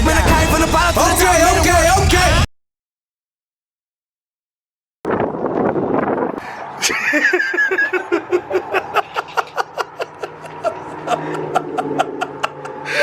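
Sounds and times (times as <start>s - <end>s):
person laughing in quick bursts: 6.8s - 13.0s.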